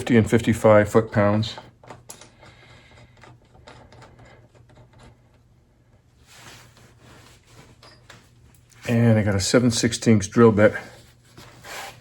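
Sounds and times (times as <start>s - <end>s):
parts clicking and rustling: 0.5s - 5.4s.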